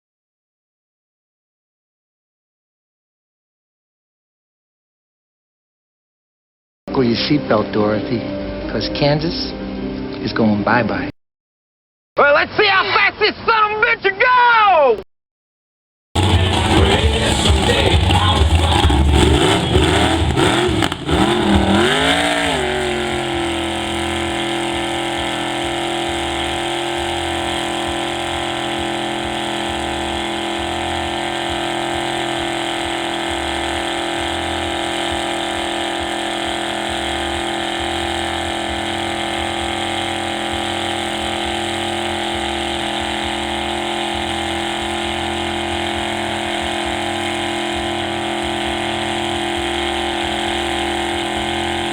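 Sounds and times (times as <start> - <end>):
off-road truck engine: 16.2 - 51.9.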